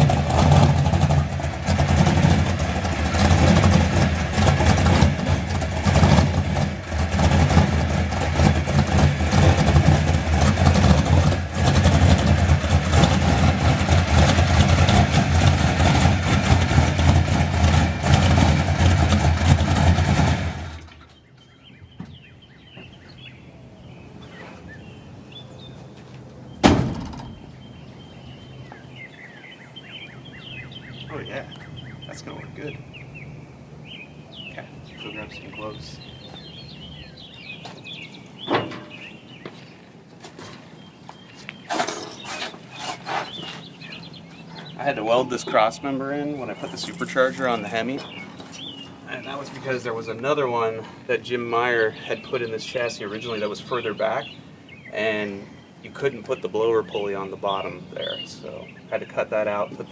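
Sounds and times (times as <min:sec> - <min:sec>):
vehicle engine running: 0:00.0 - 0:59.9
faint bird chirps: 0:21.0 - 0:39.8, 0:40.7 - 0:59.9
sharp knock: 0:26.6 - 0:27.4.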